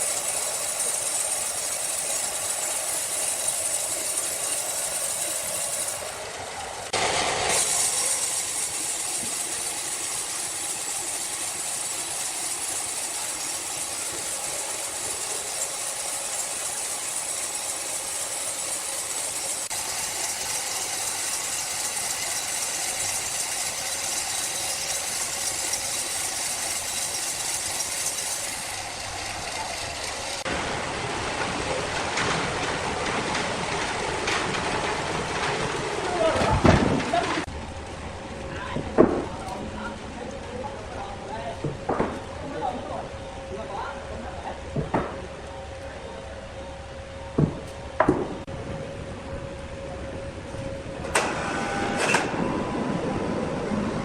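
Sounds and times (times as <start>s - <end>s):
rapid machine clatter: 0.0s - 6.2s
sawmill machine hissing: 0.0s - 37.5s, 51.1s - 54.0s.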